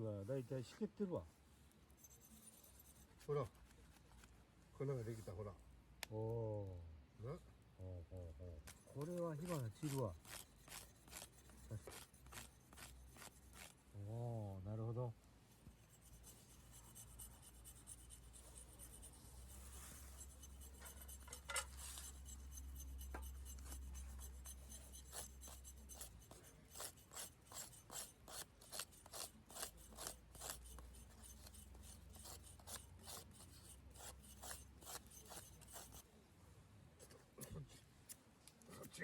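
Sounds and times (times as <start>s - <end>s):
striker rasping on fire-starter rod: 8.7s - 13.8s, 20.2s - 36.0s.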